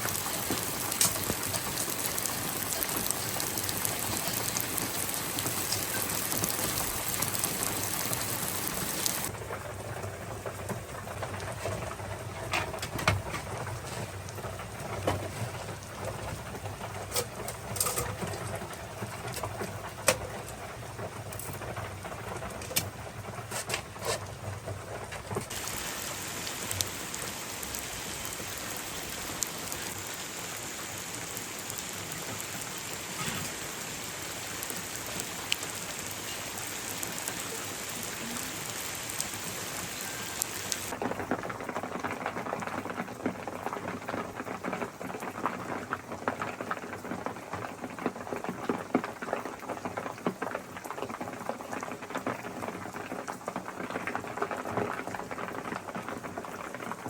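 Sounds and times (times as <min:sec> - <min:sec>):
heavy rain hissing: 0:00.0 - 0:09.4, 0:25.5 - 0:41.2
dense crackling patter: 0:00.0 - 0:57.0.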